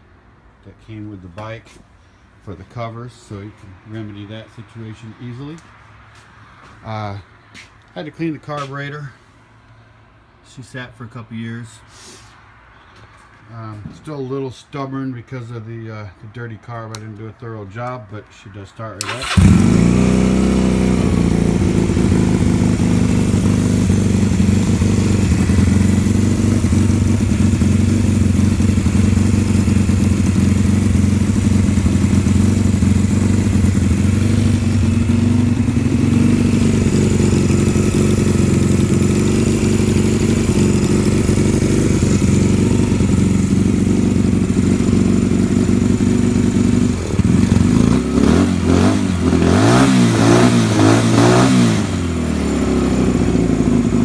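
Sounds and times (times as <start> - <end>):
motorcycle engine idling: 19.0 - 49.4, 51.9 - 54.0.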